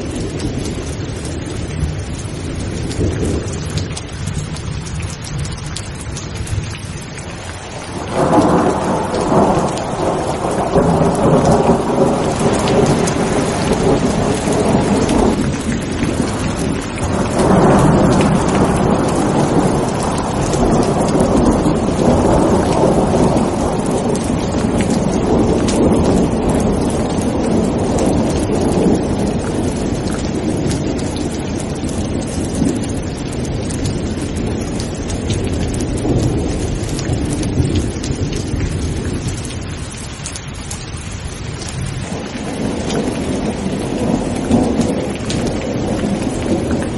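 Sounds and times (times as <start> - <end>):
rolling thunder: 0.0 - 6.8, 7.6 - 46.9
heavy rain: 0.0 - 46.9.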